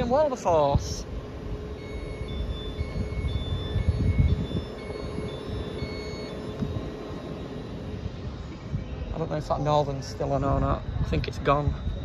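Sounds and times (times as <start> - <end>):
train hum and low rumble: 0.0 - 12.0
two-tone short beeps: 1.8 - 7.9.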